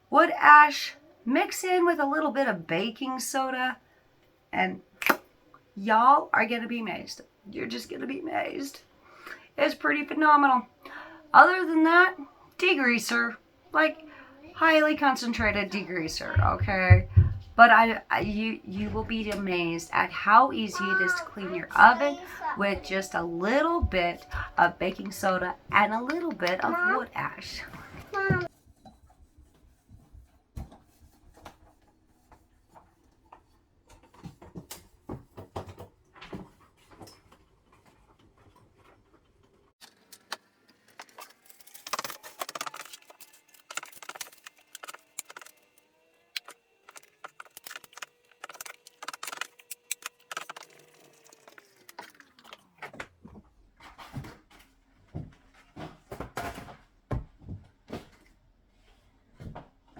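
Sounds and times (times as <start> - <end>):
household handling clicks and clatter: 32.7 - 45.6, 46.4 - 58.4
appliance motor humming: 41.0 - 53.0.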